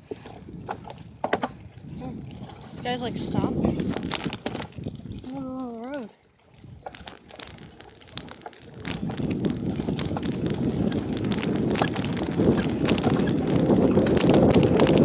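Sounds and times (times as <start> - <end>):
wind buffeting microphone: 0.0 - 15.0
bicycle clicks and rattles: 3.6 - 5.0, 6.7 - 15.0.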